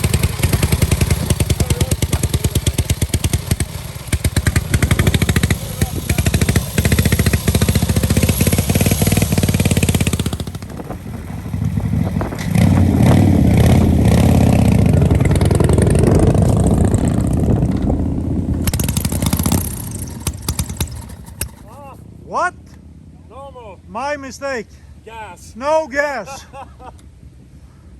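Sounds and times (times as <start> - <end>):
large engine revving: 0.0 - 22.1.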